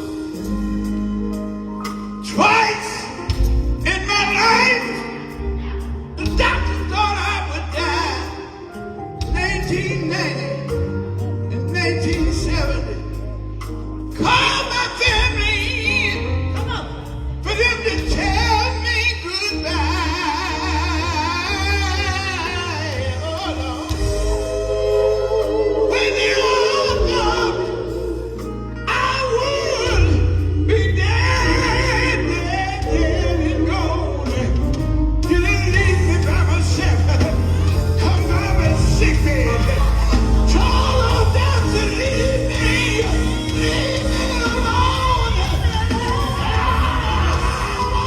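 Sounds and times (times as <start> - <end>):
gospel group singing with band: 0.0 - 48.0
heavy bass line: 21.8 - 48.0.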